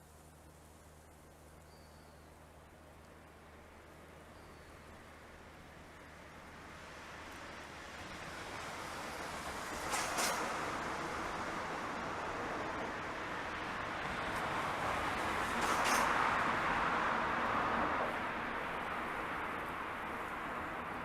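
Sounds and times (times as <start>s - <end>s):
train running noise: 5.2s - 21.0s.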